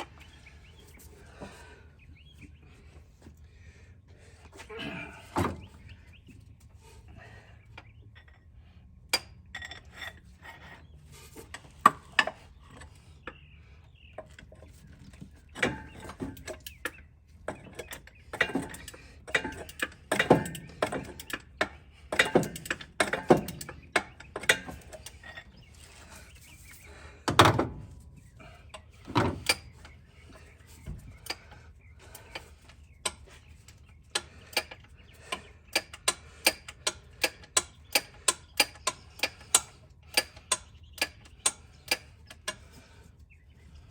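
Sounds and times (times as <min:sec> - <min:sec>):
metallic clanks and knocks: 0:15.6 - 0:26.0.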